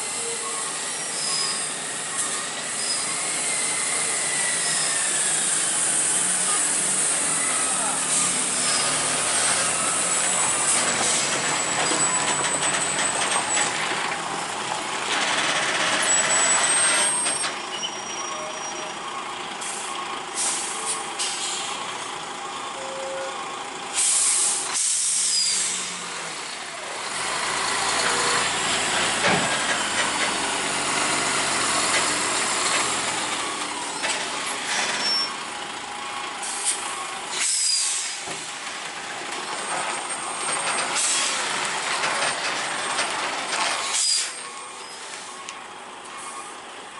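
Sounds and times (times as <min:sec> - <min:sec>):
heavy truck engine running: 0:00.0 - 0:46.9
air brake hisses: 0:19.6 - 0:21.7, 0:23.9 - 0:26.0, 0:36.4 - 0:38.3, 0:40.9 - 0:41.5, 0:43.8 - 0:45.4.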